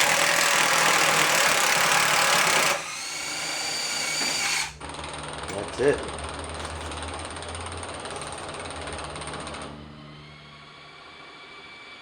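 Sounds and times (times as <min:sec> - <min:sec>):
power drill whining: 0:00.0 - 0:05.6.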